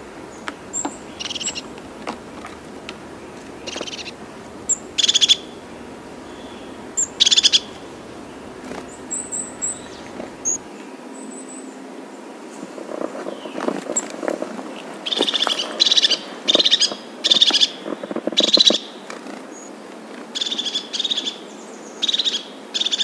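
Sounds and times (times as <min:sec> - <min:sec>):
birds calling: 0:00.0 - 0:10.7
steady background hiss: 0:00.0 - 0:23.0.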